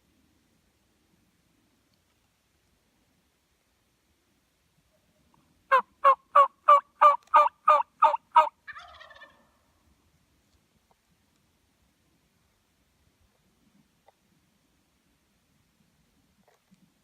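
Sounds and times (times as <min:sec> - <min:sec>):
turkey yelps: 0:05.7 - 0:09.4.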